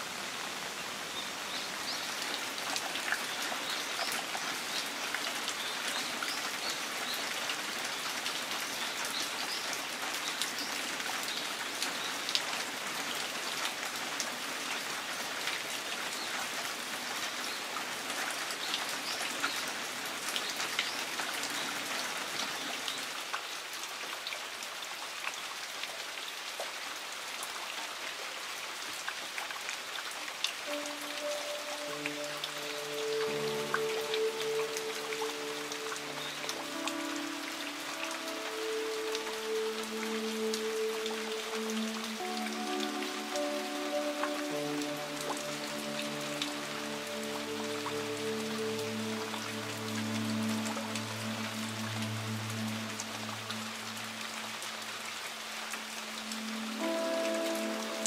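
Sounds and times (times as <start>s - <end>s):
rain on garden plants: 0.0s - 58.0s.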